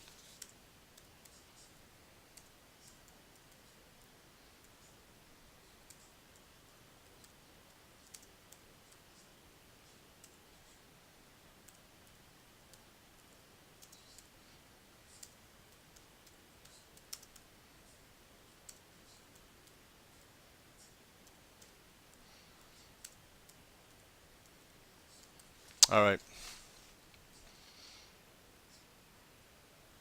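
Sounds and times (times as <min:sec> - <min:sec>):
computer keyboard and mouse clicks: 0:02.4 - 0:04.1, 0:05.9 - 0:06.2, 0:08.0 - 0:10.8, 0:13.8 - 0:14.3, 0:16.0 - 0:17.4, 0:18.7 - 0:19.8, 0:23.0 - 0:24.0.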